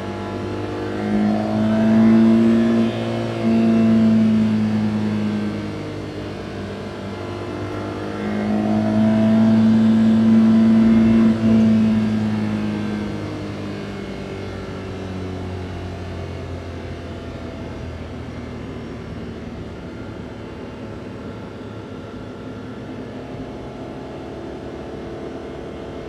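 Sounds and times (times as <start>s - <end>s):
small van engine accelerating: 0.0s - 26.0s.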